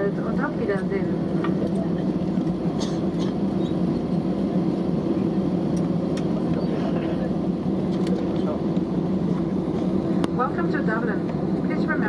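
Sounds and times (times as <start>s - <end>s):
aircraft cabin rumble: 0.0s - 12.0s.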